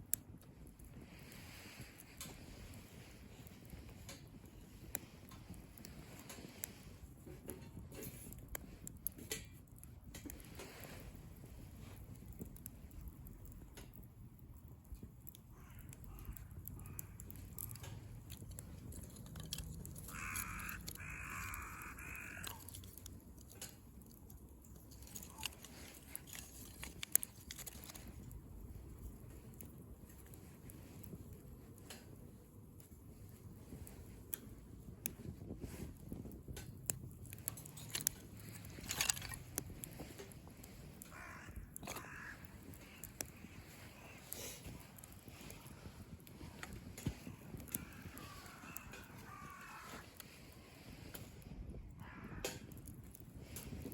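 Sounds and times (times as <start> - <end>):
wood fire crackling and popping: 0.0 - 53.9
crow cawing: 15.5 - 23.5, 25.0 - 25.6, 41.0 - 45.7, 47.2 - 50.2, 52.0 - 52.9.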